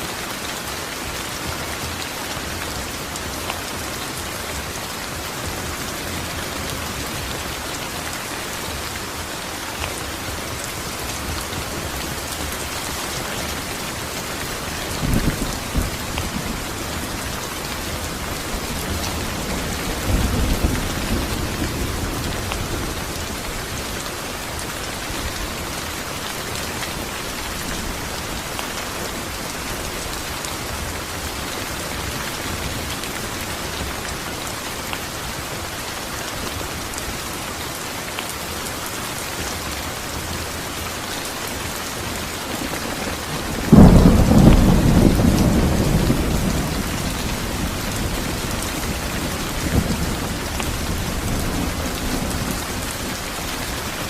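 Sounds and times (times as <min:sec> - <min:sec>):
steady rain falling: 0:00.0 - 0:54.0
thunder clap and rumble: 0:14.8 - 0:23.4, 0:43.5 - 0:53.0.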